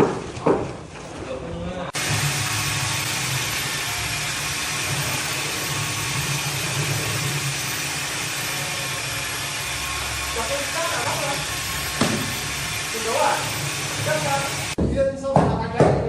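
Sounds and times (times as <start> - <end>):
motor running with hiss: 2.0 - 14.8.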